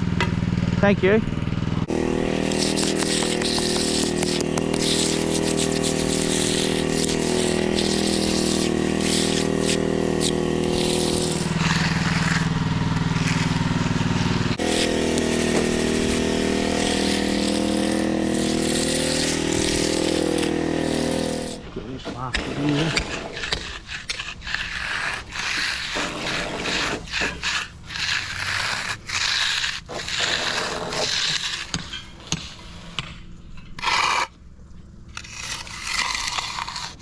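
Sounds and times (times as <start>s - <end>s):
engine running: 0.0s - 21.7s
water spraying hiss: 14.6s - 21.6s.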